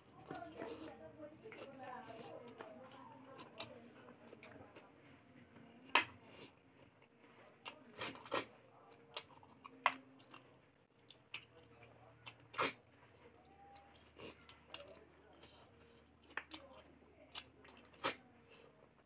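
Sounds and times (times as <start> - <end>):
person chewing food: 6.5 - 19.0.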